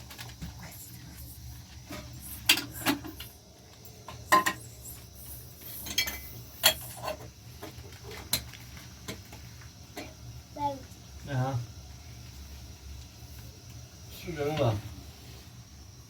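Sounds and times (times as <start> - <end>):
household objects clinking and knocking: 1.9 - 10.2.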